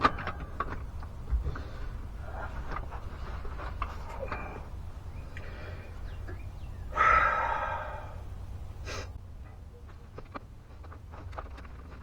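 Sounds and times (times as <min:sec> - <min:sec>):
man sighing loudly: 0:06.9 - 0:08.3
short breath: 0:06.9 - 0:09.2.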